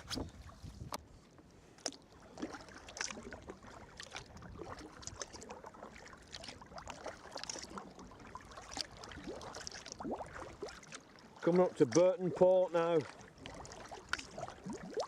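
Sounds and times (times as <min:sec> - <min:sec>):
kayak paddle splashing water: 0:00.0 - 0:15.0.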